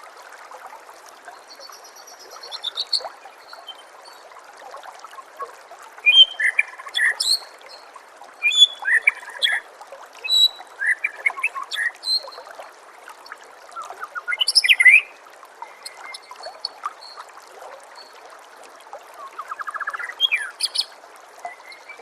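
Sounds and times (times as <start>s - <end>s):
water trickling: 0.0s - 22.0s
bird singing whistled phrases: 6.1s - 7.4s, 8.4s - 9.6s, 10.2s - 12.3s, 13.8s - 15.1s, 19.3s - 20.8s.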